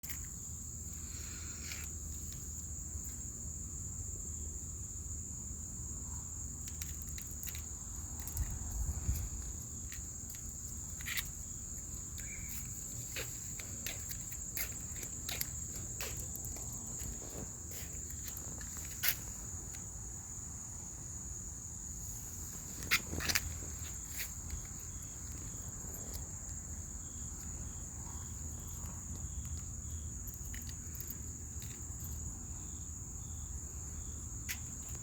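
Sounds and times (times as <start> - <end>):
crickets chirping: 0.0 - 35.0
light clicks and rustles: 6.6 - 19.8, 22.5 - 26.6, 27.4 - 32.2.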